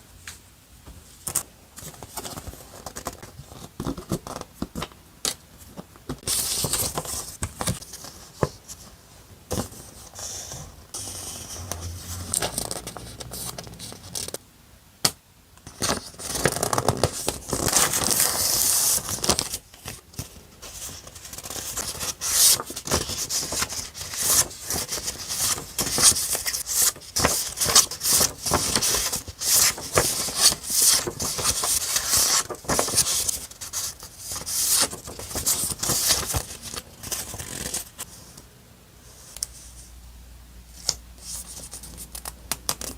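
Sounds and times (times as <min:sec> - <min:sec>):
paper rustling and scraping: 0:06.2 - 0:14.4, 0:15.7 - 0:38.3.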